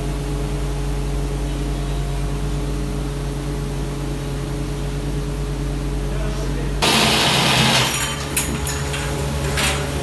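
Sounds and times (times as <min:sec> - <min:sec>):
machine hum: 0:06.8 - 0:10.0.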